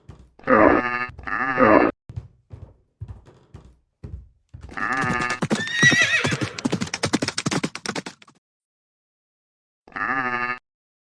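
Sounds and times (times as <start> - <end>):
hoof thuds: 0.0 - 1.5, 2.1 - 7.8.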